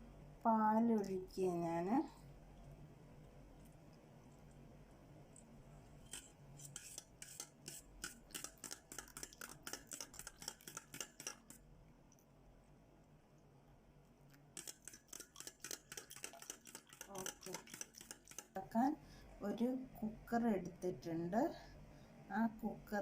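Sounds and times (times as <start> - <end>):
utensil clinking against bowl: 14.6 - 18.5.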